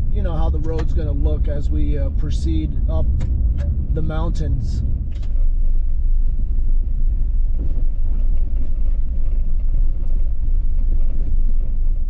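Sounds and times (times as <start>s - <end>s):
vehicle road rumble: 0.0s - 12.0s.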